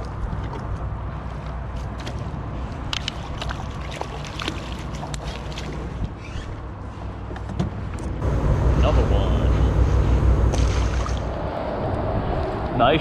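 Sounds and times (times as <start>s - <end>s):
wind rumble on microphone: 5.1s - 13.0s.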